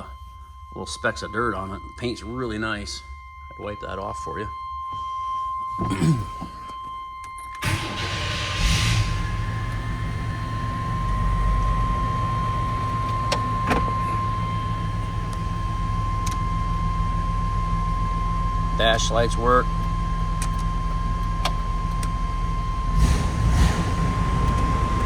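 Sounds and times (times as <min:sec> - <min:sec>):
pickup engine cranking and idling: 0:07.6 - 0:25.0.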